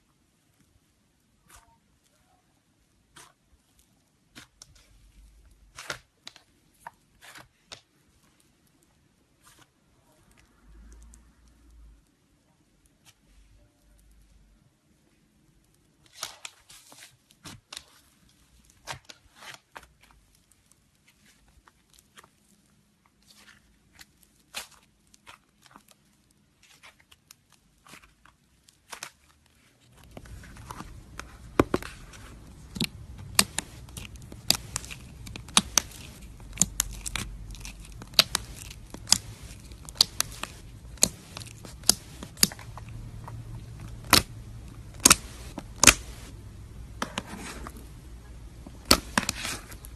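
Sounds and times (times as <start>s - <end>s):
slime crackling pops: 32.6s - 43.0s, 43.8s - 46.3s, 48.7s - 49.9s.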